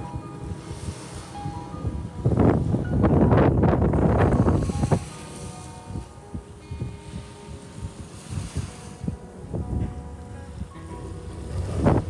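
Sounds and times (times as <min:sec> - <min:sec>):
faint background music: 0:00.0 - 0:12.0
wind buffeting microphone: 0:00.0 - 0:12.0.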